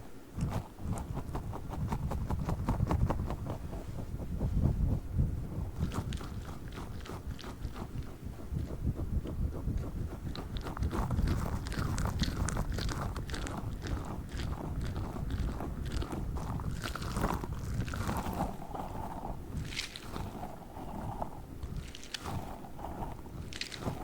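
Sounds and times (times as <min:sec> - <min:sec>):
handling rumble: 0:00.0 - 0:24.0
squishy balls squelching: 0:05.6 - 0:24.0.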